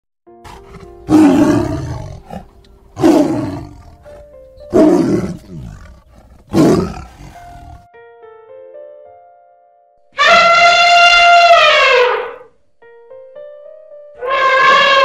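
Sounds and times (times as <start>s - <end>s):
soft background music: 0.3s - 10.2s, 12.3s - 15.0s
tiger roaring: 0.5s - 7.9s.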